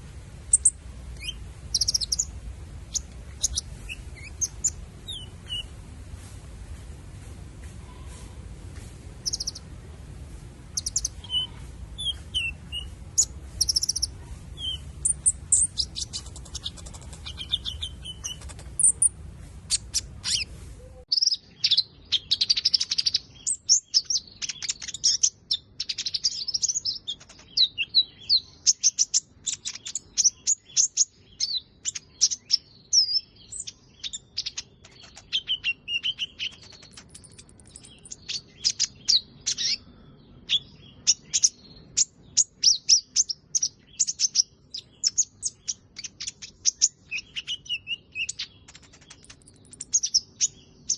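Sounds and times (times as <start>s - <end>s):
low background rumble: 0.0s - 21.1s
bird chirping and trilling: 0.5s - 5.7s, 9.2s - 9.7s, 10.7s - 50.9s.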